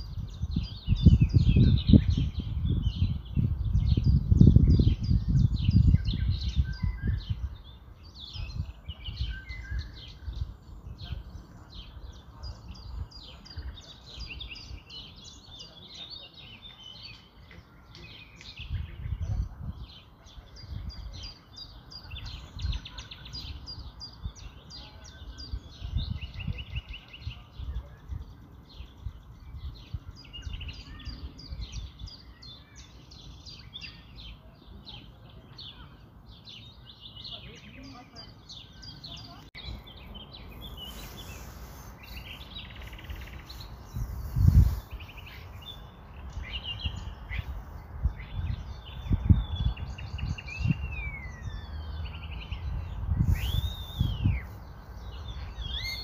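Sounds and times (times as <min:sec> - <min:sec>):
small birds chirping and twittering: 0:00.0 - 0:56.0.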